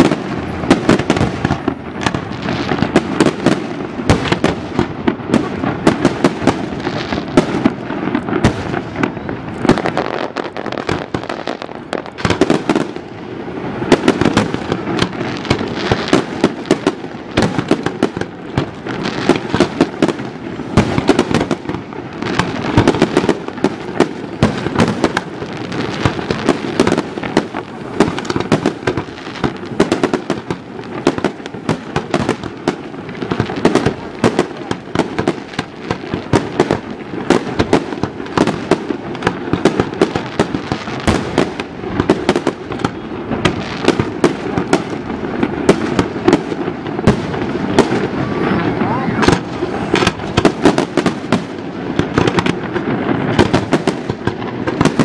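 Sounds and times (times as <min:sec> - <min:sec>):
fireworks bangs and crackles: 0:00.0 - 0:55.0
loud firework reports: 0:00.0 - 0:55.0.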